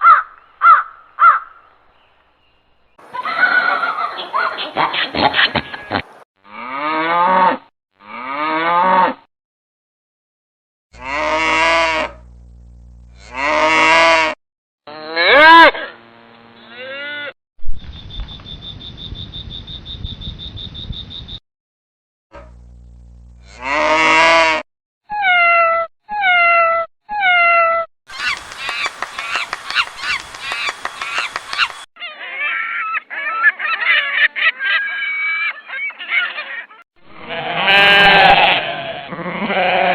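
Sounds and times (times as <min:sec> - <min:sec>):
rising animal call: 0:27.2 - 0:39.9
waterfowl honking: 0:28.1 - 0:31.9
flock of birds calling: 0:28.1 - 0:36.8.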